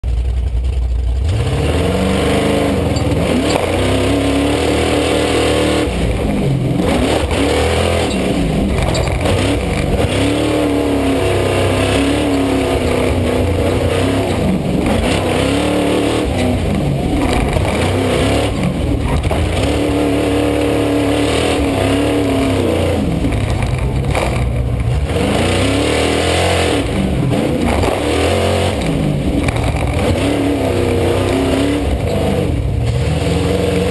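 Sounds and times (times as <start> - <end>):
monster truck engine revving: 0.0 - 33.9.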